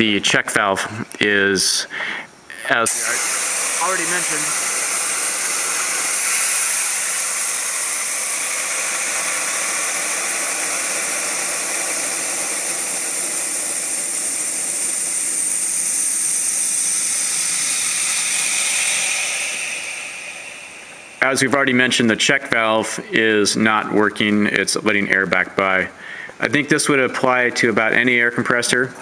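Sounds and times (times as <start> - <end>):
compressed air hissing: 1.9 - 23.5, 25.8 - 26.7.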